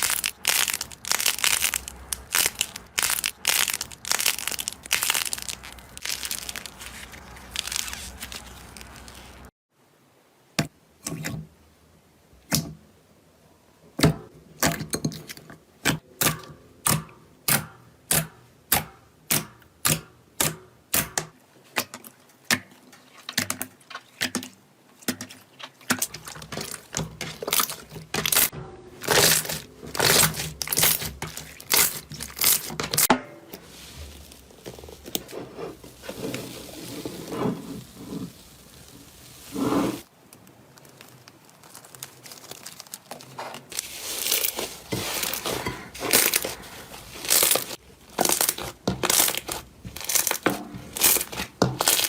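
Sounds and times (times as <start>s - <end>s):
slime crunching crackle: 0.0s - 9.5s, 26.0s - 52.0s.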